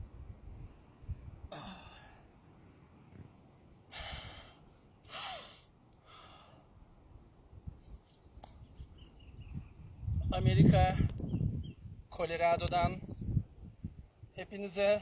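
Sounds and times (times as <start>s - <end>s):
person breathing out heavily: 1.5s - 2.3s, 3.9s - 6.7s.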